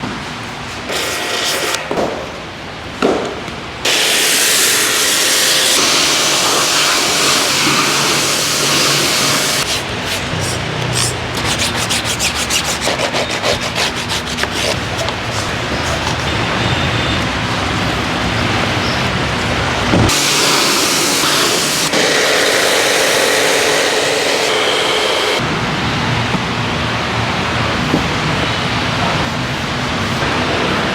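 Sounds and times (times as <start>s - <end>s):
water spraying: 3.9s - 12.8s, 20.1s - 25.4s
brushes rubbing against car: 8.6s - 16.8s.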